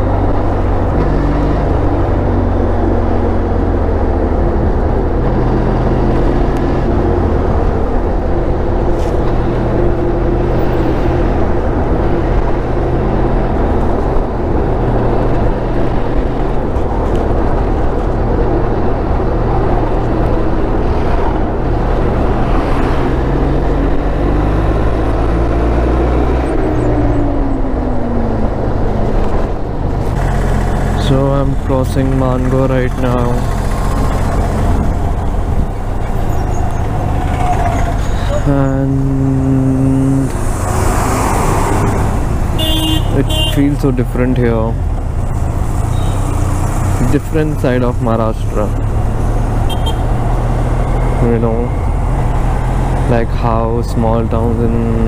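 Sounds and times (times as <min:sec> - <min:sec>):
motorcycle engine rumbling: 0:26.3 - 0:55.0.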